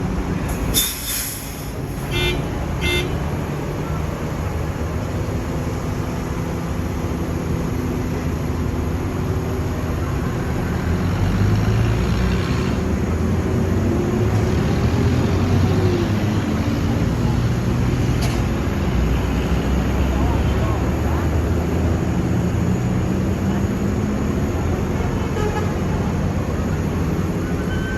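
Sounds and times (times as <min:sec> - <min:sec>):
heavy diesel crane engine: 0:00.0 - 0:27.9
short horn toots: 0:00.8 - 0:03.2.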